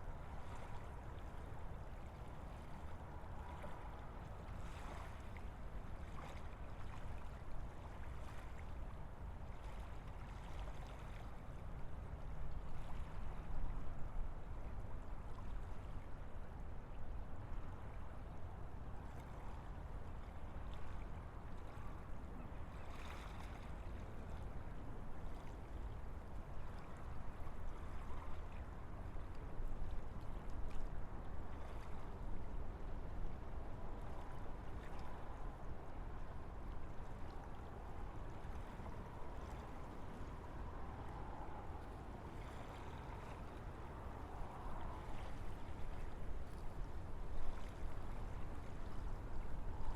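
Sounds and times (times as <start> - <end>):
wind blowing through trees: 37.3 - 45.7.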